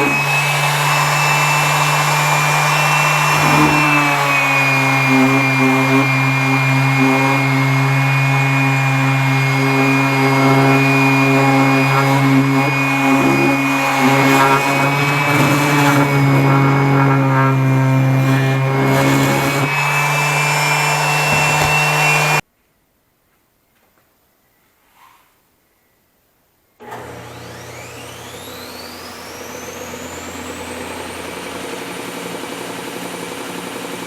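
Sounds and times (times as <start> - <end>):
electric power tool motor: 0.0 - 22.4, 26.8 - 34.0
rough grinding noise: 0.0 - 22.4.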